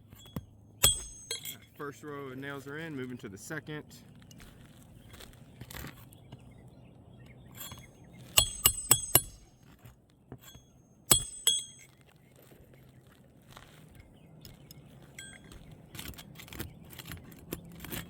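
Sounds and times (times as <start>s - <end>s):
hatchet striking roofing nails: 0.0s - 1.7s, 7.6s - 11.8s, 15.2s - 18.0s.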